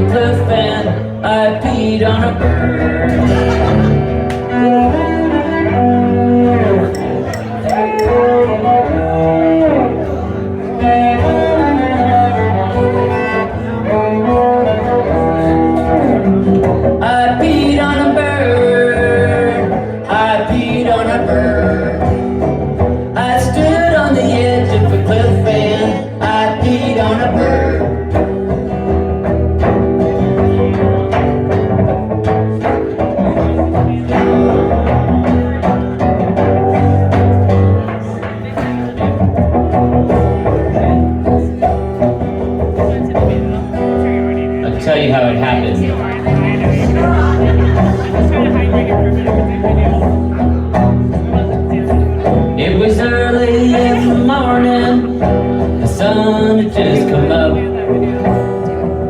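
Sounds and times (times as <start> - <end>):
bowed cello: 0.0 - 26.2
strummed guitar: 0.0 - 59.0.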